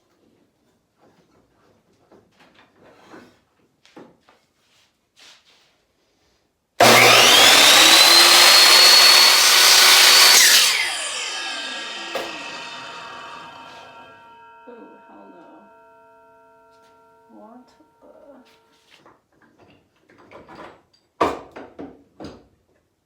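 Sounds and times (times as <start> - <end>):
miter saw motor whine: 6.8 - 17.3.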